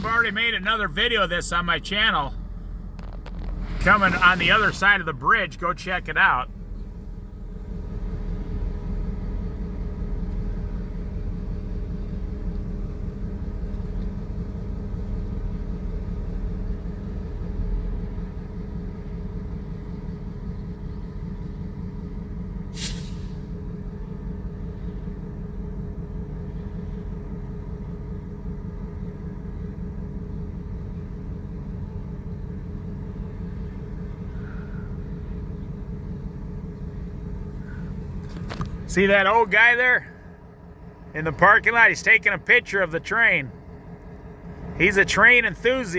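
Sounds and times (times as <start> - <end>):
steady tones: 0.0 - 6.6
train rumbling past: 0.0 - 12.3
sharp hiss: 22.7 - 23.4.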